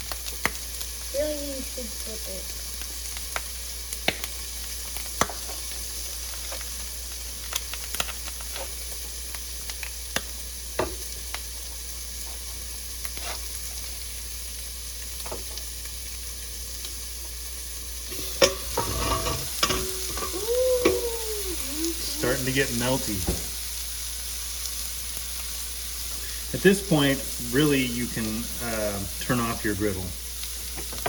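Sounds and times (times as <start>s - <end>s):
eggs sizzling on a griddle: 0.0s - 31.0s
fat popping: 18.1s - 22.0s.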